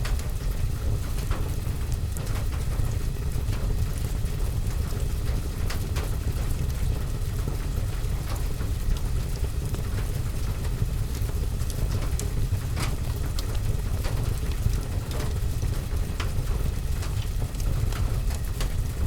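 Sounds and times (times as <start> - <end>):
rain on a window and roof: 0.0 - 19.0
fire crackling and popping: 5.2 - 19.0.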